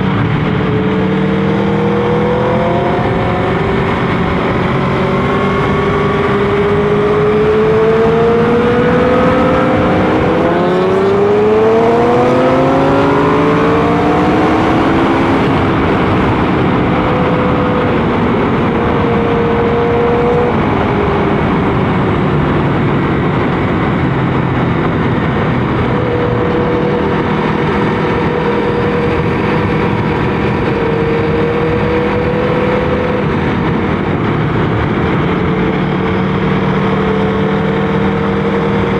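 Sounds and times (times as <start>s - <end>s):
motorcycle engine accelerating: 0.0s - 38.9s
steady rush of noise: 0.0s - 38.9s.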